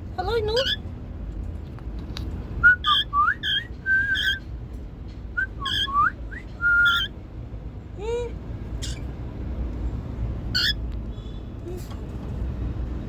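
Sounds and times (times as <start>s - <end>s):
cockatiel whistling chirps: 2.6s - 4.4s, 5.4s - 7.1s.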